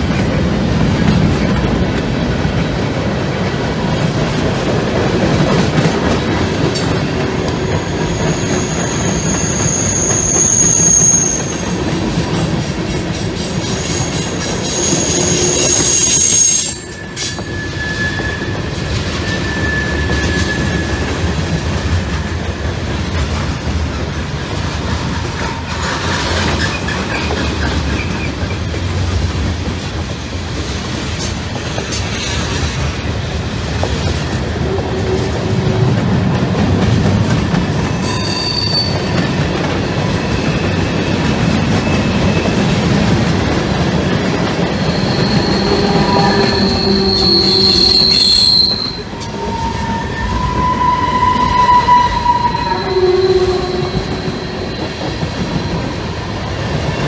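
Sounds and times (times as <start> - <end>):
train wheels rumbling on rail: 0.0 - 57.0
metallic wheel squeals: 7.8 - 11.7, 13.8 - 21.8, 37.9 - 39.4, 44.7 - 56.0.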